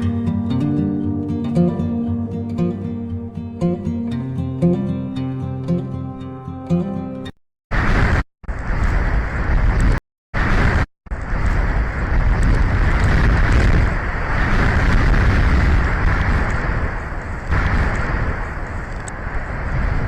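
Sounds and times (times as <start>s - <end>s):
strong wind on microphone: 7.7s - 20.0s.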